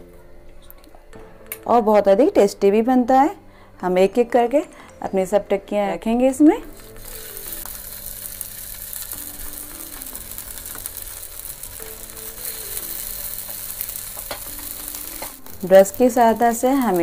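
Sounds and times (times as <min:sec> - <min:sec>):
soft background music: 0:00.0 - 0:17.0
patties sizzling on griddle: 0:06.7 - 0:17.0.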